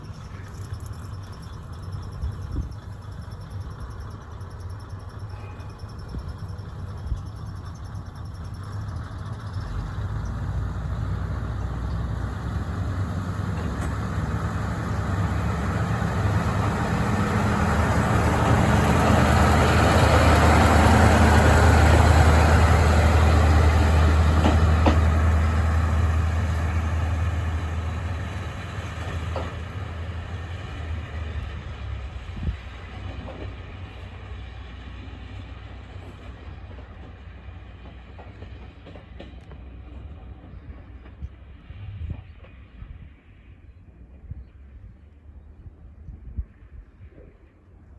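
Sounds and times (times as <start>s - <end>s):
diesel railcar engine hum: 0.0s - 47.9s.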